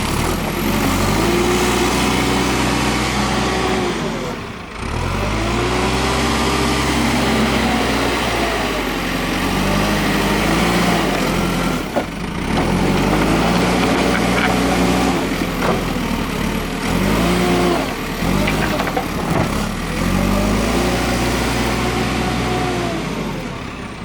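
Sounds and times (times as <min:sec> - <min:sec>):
diesel engine under load: 0:00.0 - 0:24.0.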